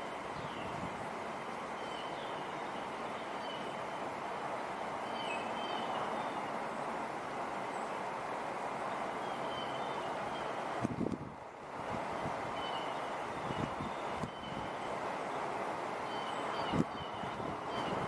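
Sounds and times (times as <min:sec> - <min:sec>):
wind rushing through trees: 0:00.0 - 0:18.0
faint bird chirps: 0:12.6 - 0:14.8, 0:16.0 - 0:18.0.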